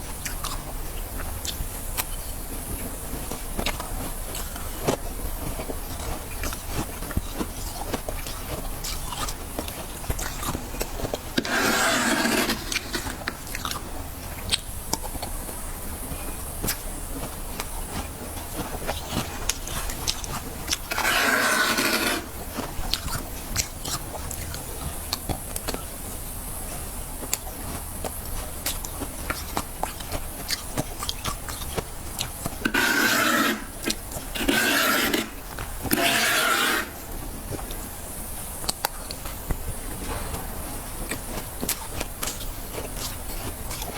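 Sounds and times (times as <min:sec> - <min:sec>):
frost being chewed: 0:00.0 - 0:43.9
frost being scraped: 0:02.9 - 0:24.4, 0:26.8 - 0:38.0.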